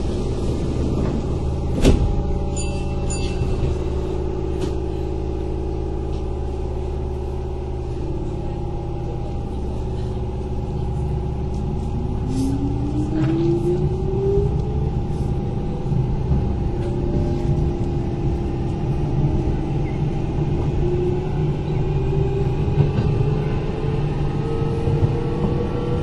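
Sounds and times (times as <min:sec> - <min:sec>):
wheels rumbling on rail: 0:00.0 - 0:26.0.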